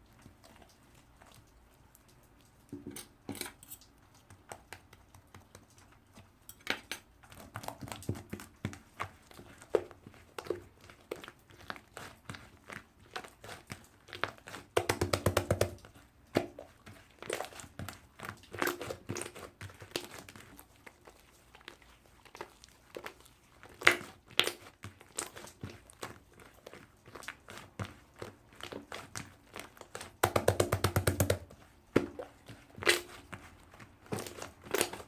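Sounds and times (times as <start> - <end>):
hands squishing slime: 7.2 - 35.0.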